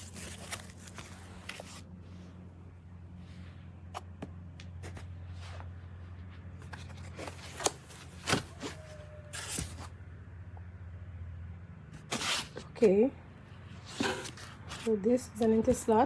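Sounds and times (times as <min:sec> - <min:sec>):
plastic packaging rustling: 0:00.0 - 0:01.9
steady low hum: 0:00.0 - 0:16.0.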